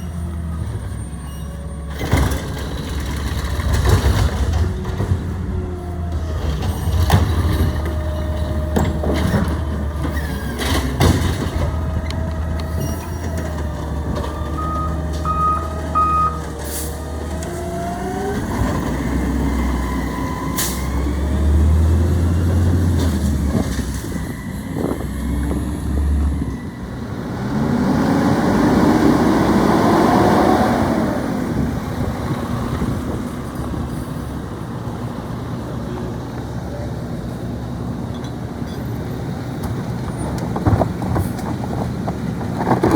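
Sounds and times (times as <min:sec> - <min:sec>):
garbage truck engine running: 0:01.8 - 0:42.9
reversing beeps: 0:14.4 - 0:17.1.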